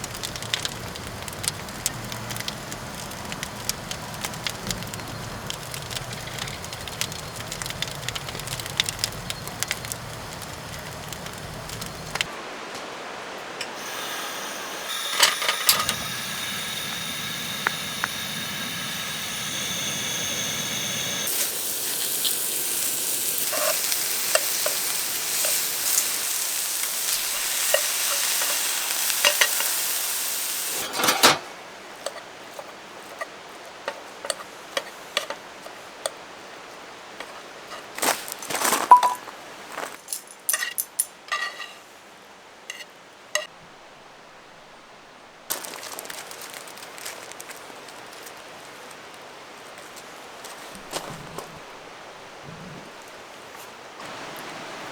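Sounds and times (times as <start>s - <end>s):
food sizzling: 0.0s - 12.4s, 13.6s - 39.9s, 45.4s - 48.5s, 54.0s - 54.9s
utensils clinking on pots: 14.8s - 19.4s, 23.3s - 29.8s, 30.7s - 32.2s, 38.9s - 39.2s, 40.1s - 41.8s
cookware clank: 30.8s - 31.5s.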